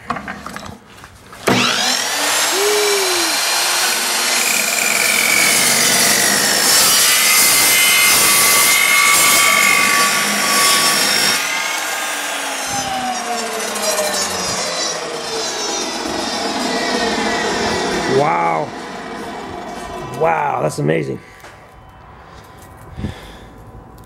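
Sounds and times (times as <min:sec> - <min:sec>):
chop saw motor whine: 0:01.4 - 0:20.6
saw blade cutting metal: 0:01.5 - 0:20.2.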